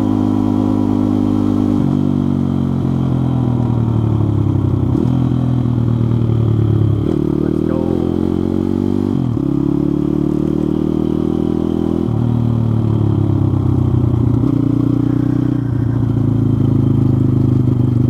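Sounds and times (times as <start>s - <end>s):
pit bike engine running: 0.1s - 18.0s.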